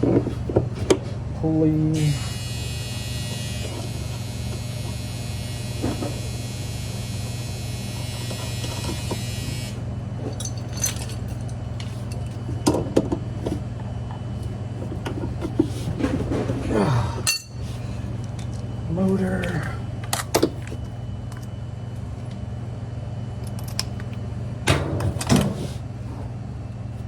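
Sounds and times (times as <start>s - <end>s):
steady low hum: 0.0s - 27.0s
fine high buzz: 1.8s - 12.3s
clicks and knocks of tools: 10.2s - 13.6s, 23.4s - 25.5s.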